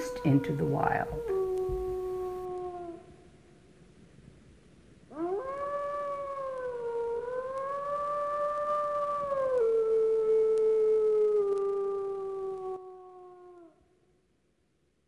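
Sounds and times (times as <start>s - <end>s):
wolf howling: 0.0s - 3.1s, 5.1s - 13.8s.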